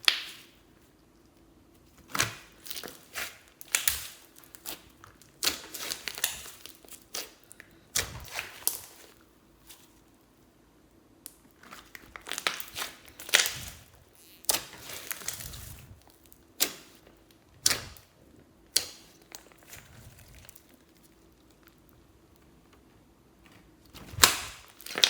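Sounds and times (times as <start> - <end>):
slime popping and crackling: 0.0 - 0.6, 2.1 - 9.2, 11.3 - 17.0, 23.9 - 25.0.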